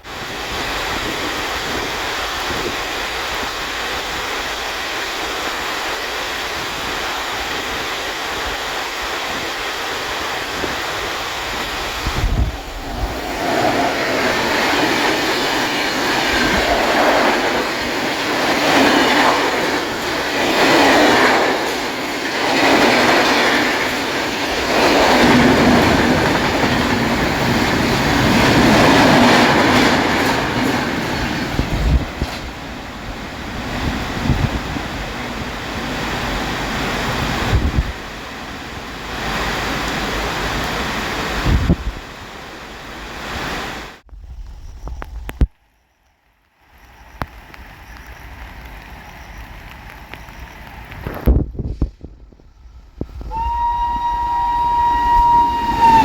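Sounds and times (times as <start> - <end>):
train wheels rushing and rattling: 0.0 - 42.1, 46.9 - 56.0
heavy rain falling: 0.1 - 44.0.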